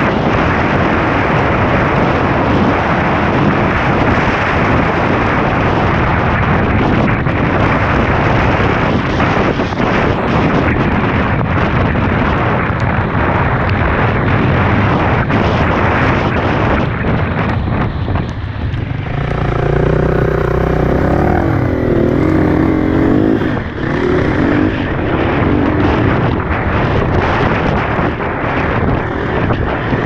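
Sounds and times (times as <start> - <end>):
wind rushing over microphone: 0.0 - 30.0
dirt bike engine revving: 18.7 - 26.1.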